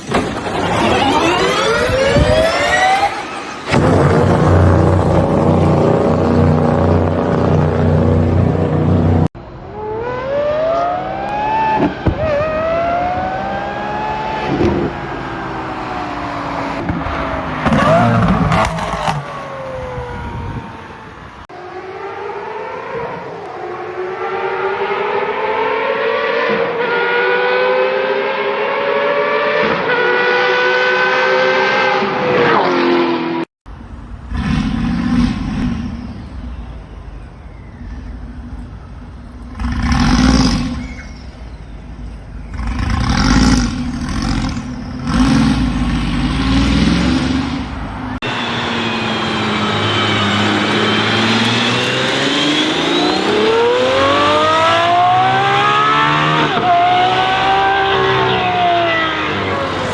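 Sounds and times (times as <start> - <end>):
high-revving engine accelerating: 0.0 - 20.4, 21.4 - 33.5, 34.1 - 59.9
deep engine revving: 34.1 - 37.2, 37.9 - 59.9.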